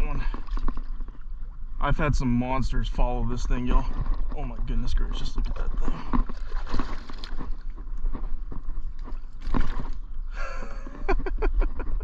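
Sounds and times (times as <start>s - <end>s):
knocks and water splashing: 0.0s - 1.2s, 3.6s - 7.8s, 9.0s - 10.0s.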